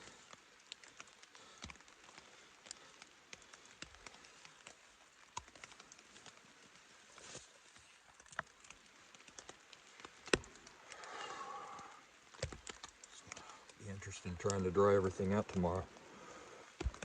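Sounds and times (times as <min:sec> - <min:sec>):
raindrops ticking on fabric: 0:00.0 - 0:17.0.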